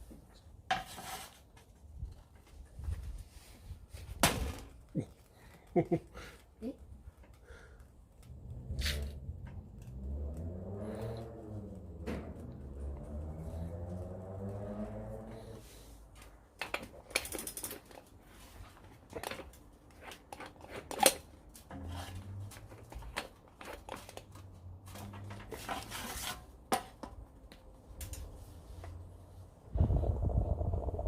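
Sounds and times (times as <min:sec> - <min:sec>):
rustling scrapes: 0:00.7 - 0:01.8, 0:23.6 - 0:27.0
clicks and knocks of handling: 0:16.2 - 0:18.2.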